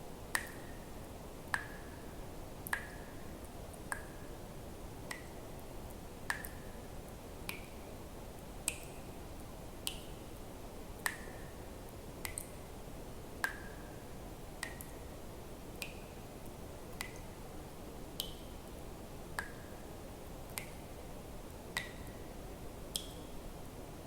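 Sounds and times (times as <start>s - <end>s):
faint steady hiss: 0.0s - 24.0s
water drops plinking into water: 0.3s - 0.8s, 1.5s - 2.0s, 2.6s - 3.2s, 3.9s - 4.2s, 5.1s - 5.4s, 6.3s - 6.8s, 7.4s - 7.8s, 8.6s - 9.0s, 11.0s - 11.6s, 12.2s - 12.6s, 13.4s - 13.9s, 14.6s - 15.0s, 17.0s - 17.3s, 18.2s - 18.6s, 19.4s - 19.7s, 20.5s - 20.8s, 21.7s - 22.2s, 22.9s - 23.3s.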